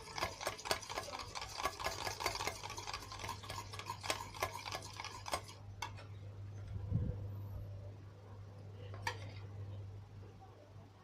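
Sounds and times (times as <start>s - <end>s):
utensil scraping thick mix: 0.0s - 6.0s.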